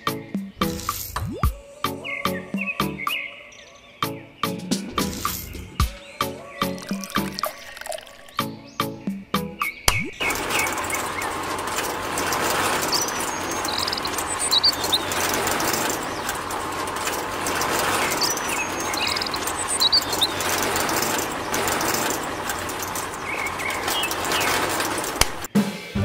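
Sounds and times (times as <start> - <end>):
bird chirps: 1.4 - 11.4, 12.8 - 16.3, 18.0 - 21.8
model concrete mixer running: 6.7 - 8.4, 9.9 - 25.5.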